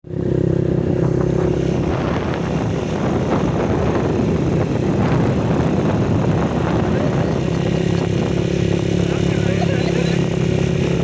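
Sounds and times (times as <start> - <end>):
road and wind rumble: 0.0 - 11.0
small motorcycle engine running: 0.1 - 11.0.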